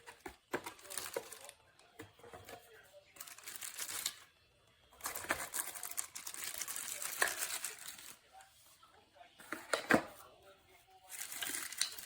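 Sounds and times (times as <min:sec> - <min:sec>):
rustling and crinkling handling: 0:00.0 - 0:04.3, 0:05.0 - 0:10.3, 0:10.9 - 0:12.0.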